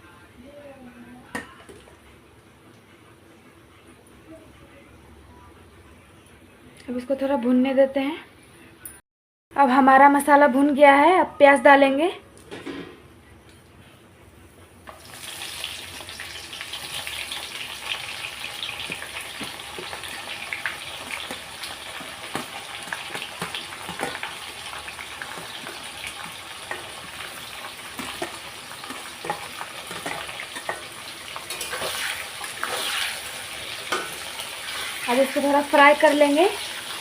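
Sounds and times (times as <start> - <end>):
onions sizzling in hot oil: 14.9 - 37.0.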